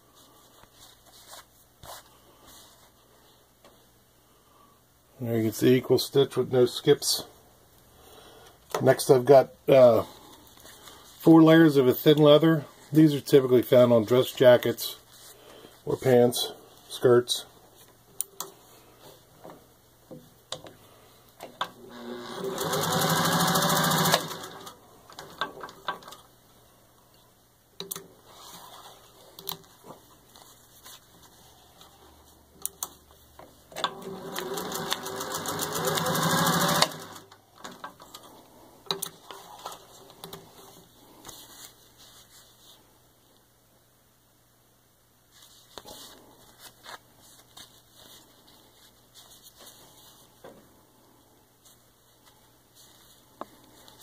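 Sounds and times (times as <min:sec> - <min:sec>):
sewing machine stitching leather: 0:21.9 - 0:25.4, 0:33.8 - 0:37.9.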